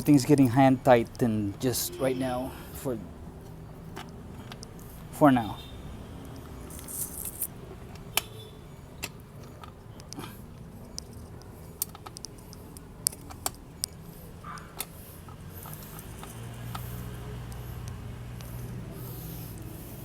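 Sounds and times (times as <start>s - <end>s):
metal clicks and taps: 9.0s - 16.9s.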